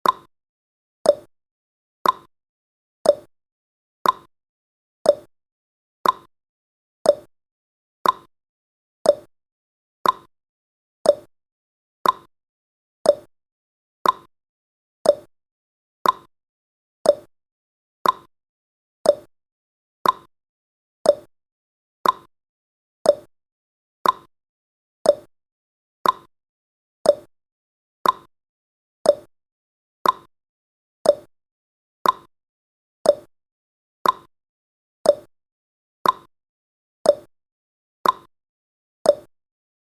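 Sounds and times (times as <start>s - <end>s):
timer ticking: 0.0s - 0.3s, 1.1s - 1.3s, 2.0s - 2.3s, 3.0s - 3.3s, 4.0s - 4.3s, 5.1s - 5.3s, 6.0s - 6.3s, 7.0s - 7.3s, 8.0s - 8.3s, 9.0s - 9.3s, 10.0s - 10.3s, 11.0s - 11.3s, 12.0s - 12.3s, 13.0s - 13.3s, 14.0s - 14.3s, 15.0s - 15.3s, 16.0s - 16.3s, 17.0s - 17.3s, 18.0s - 18.3s, 19.0s - 19.3s, 20.0s - 20.3s, 21.0s - 21.3s, 22.0s - 22.3s, 23.0s - 23.3s, 24.0s - 24.3s, 25.0s - 25.3s, 26.0s - 26.3s, 27.0s - 27.3s, 28.0s - 28.3s, 29.0s - 29.3s, 30.0s - 30.3s, 31.0s - 31.3s, 32.0s - 32.3s, 33.0s - 33.3s, 34.0s - 34.3s, 35.0s - 35.3s, 36.0s - 36.3s, 37.1s - 37.3s, 38.0s - 38.3s, 39.1s - 39.3s.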